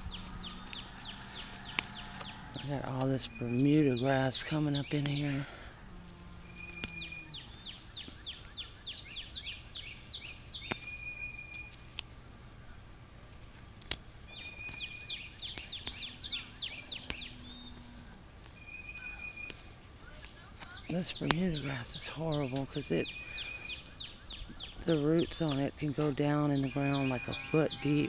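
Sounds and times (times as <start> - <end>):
songbird singing: 0.0 - 28.0
faint sharp clicks: 0.5 - 2.4, 6.4 - 7.0, 10.6 - 10.9, 14.7 - 21.6.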